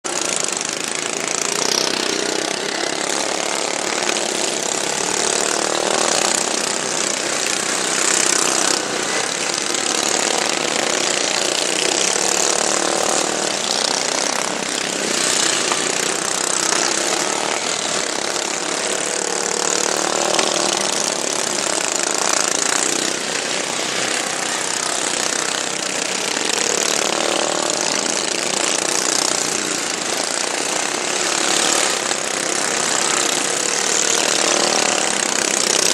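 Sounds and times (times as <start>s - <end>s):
lawn mower engines running hard: 0.0s - 35.9s.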